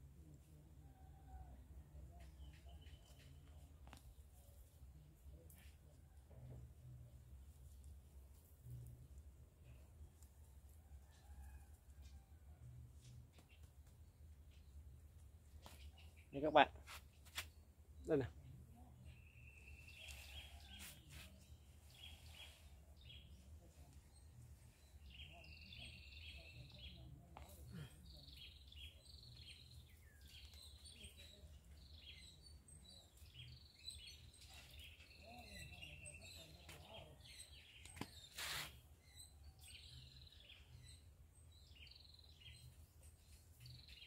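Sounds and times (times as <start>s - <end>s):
small bird chirping: 19.0s - 44.0s.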